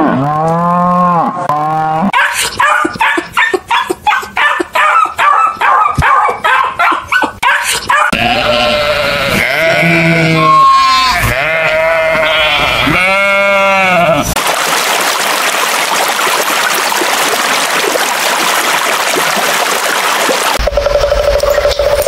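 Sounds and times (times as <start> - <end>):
sheep bleating: 8.1 - 14.4.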